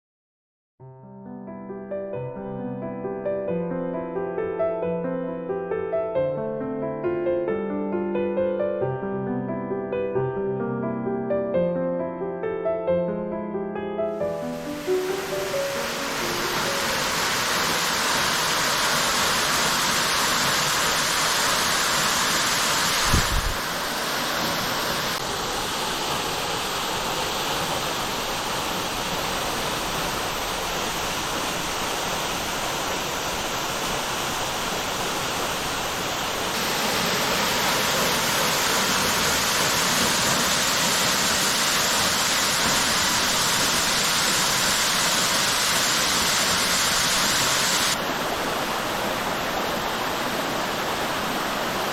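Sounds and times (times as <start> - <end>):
waterfall rushing: 14.1 - 51.9.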